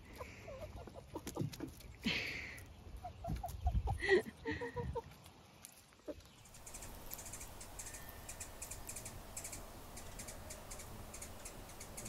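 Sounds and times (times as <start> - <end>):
hen clucking: 0.0 - 1.8, 2.9 - 5.2, 6.0 - 12.0
faint high bird chirps: 6.2 - 12.0.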